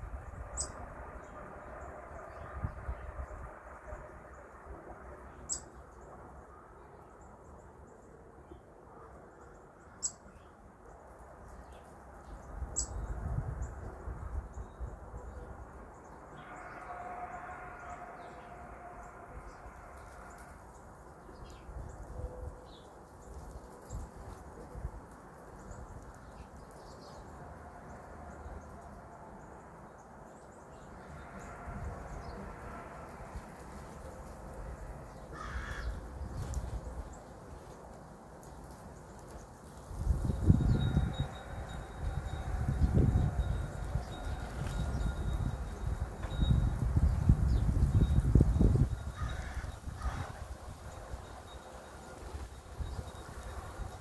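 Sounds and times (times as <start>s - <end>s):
songbirds chirping: 14.5s - 41.8s.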